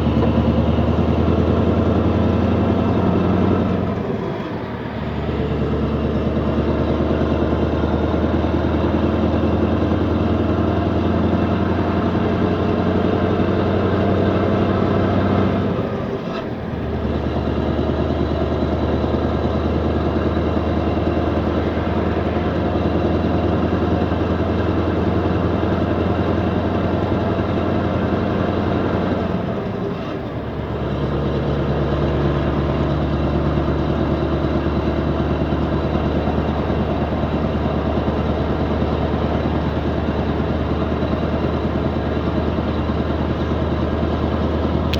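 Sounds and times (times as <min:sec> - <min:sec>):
diesel engine exhaust running: 0:00.0 - 0:44.9.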